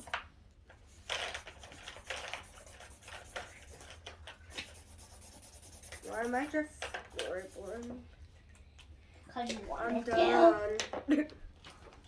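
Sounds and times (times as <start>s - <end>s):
marker scribbling on paper: 0.9s - 8.0s.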